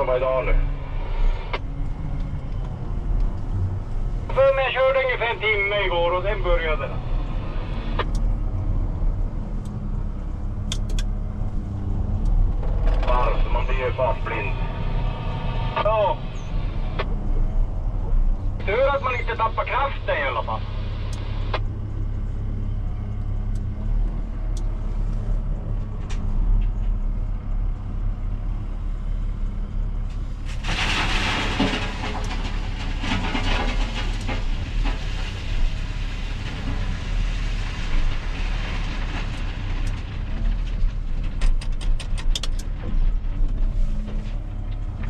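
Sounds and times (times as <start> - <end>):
diesel engine running: 0.0 - 45.0
gravel pouring into truck bed: 30.4 - 39.8.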